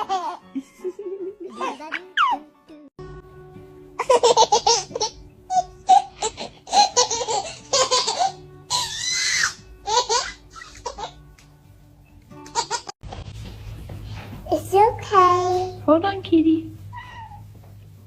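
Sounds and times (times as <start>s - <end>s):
child squealing: 8.7s - 9.6s.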